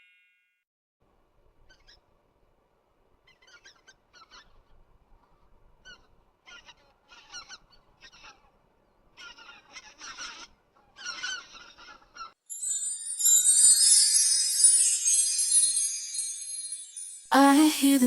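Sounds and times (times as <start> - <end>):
swans calling: 9.2 - 12.4.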